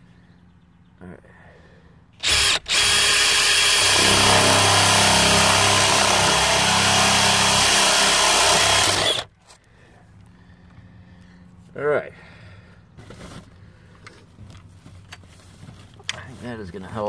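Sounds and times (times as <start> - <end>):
handheld power tool running: 2.2 - 9.3.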